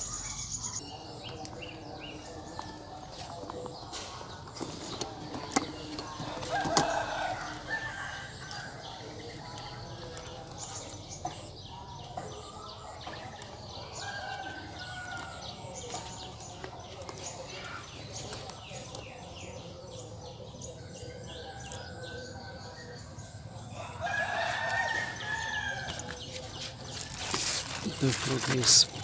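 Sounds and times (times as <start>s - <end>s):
small birds chirping: 0.0s - 29.0s
rooster crowing: 6.5s - 8.9s, 23.7s - 26.1s.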